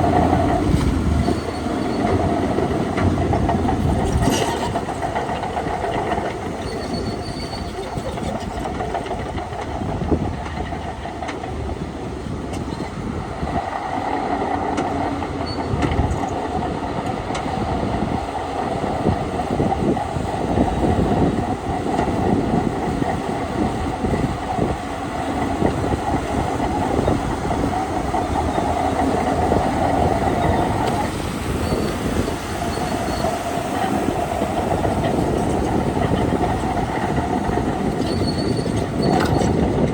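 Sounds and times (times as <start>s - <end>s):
bulldozer diesel engine: 0.0s - 39.9s
steel tracks clanking: 0.0s - 39.9s.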